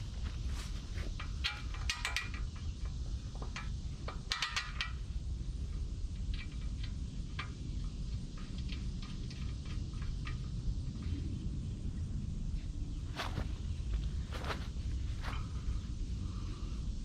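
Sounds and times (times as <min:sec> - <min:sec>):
steady low rumble: 0:00.0 - 0:04.2, 0:05.0 - 0:17.0
light metal ticks: 0:01.2 - 0:05.0, 0:05.7 - 0:10.6.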